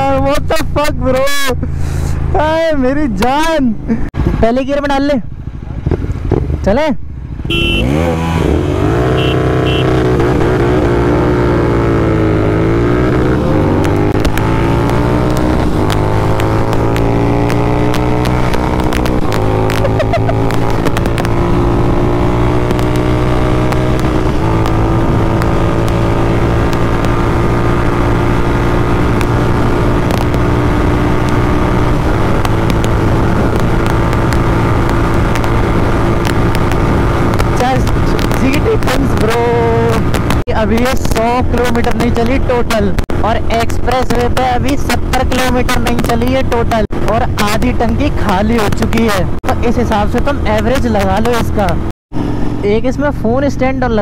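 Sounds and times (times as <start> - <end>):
motorcycle engine revving: 4.2 - 52.9.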